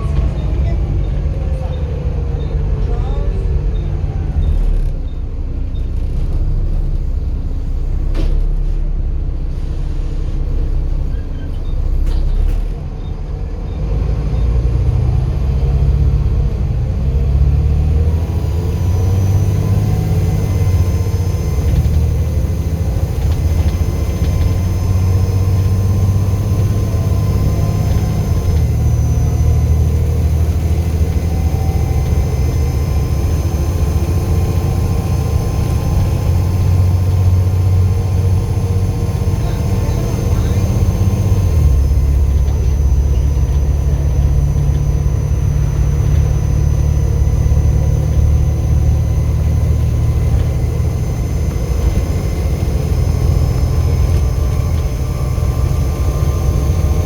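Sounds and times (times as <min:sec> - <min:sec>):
bus diesel engine under load: 0:00.0 - 0:57.0.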